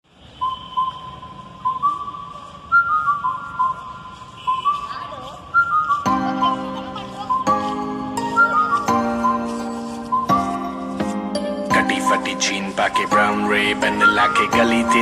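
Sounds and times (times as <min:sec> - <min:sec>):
person whistling a melody: 0:00.4 - 0:06.6, 0:08.2 - 0:08.9.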